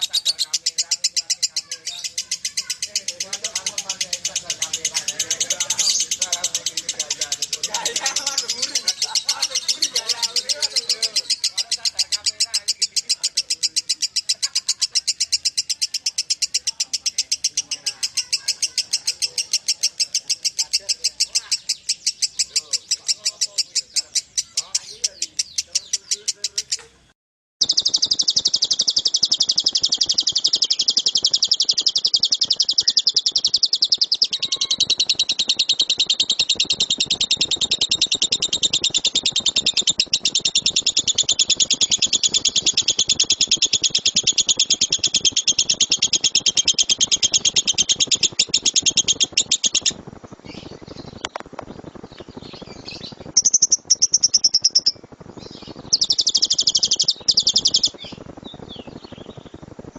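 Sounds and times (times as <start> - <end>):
lovebird chattering: 0.0 - 27.0, 27.6 - 59.6
bird chirps: 0.0 - 59.6.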